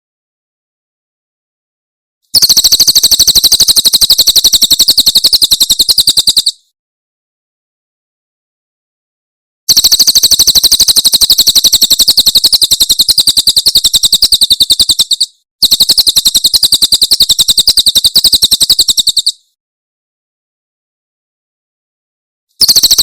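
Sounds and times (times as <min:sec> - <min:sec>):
bird trilling song: 0:02.4 - 0:06.6, 0:09.8 - 0:19.5.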